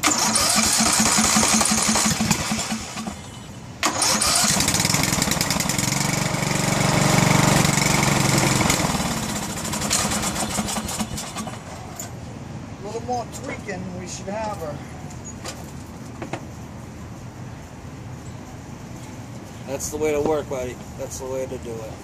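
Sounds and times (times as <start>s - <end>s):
engine cranking by starter: 0.0s - 11.9s.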